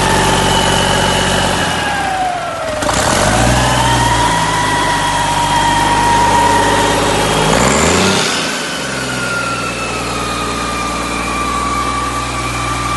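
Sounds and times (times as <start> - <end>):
diesel engine running: 0.0 - 12.9
steady whine: 0.0 - 12.9.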